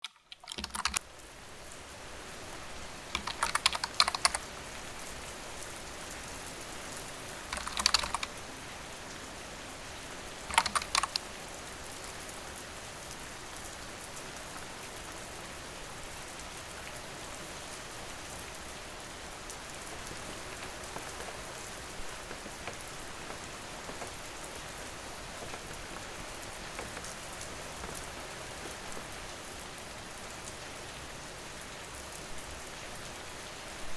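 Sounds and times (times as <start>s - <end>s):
rapid clicking: 0.0s - 1.0s, 3.2s - 4.4s, 7.5s - 8.4s, 10.5s - 11.3s
steady rain: 0.0s - 33.9s.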